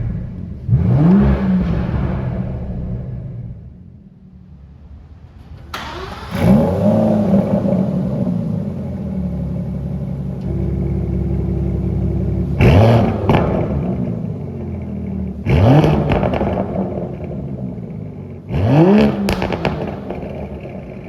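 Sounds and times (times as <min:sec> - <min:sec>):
car engine starting and idling: 0:00.0 - 0:21.0
engine throttle blip: 0:04.2 - 0:18.0, 0:18.7 - 0:21.0.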